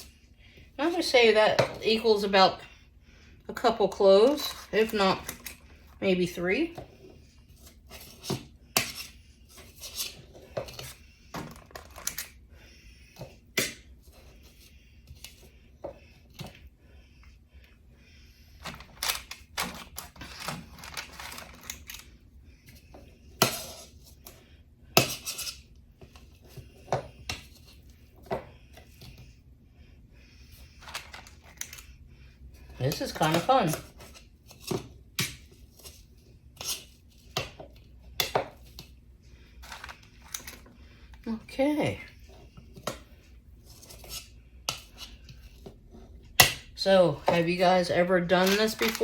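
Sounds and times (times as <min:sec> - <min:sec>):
metal scoop scraping a bowl: 0:07.6 - 0:11.0, 0:43.6 - 0:46.1.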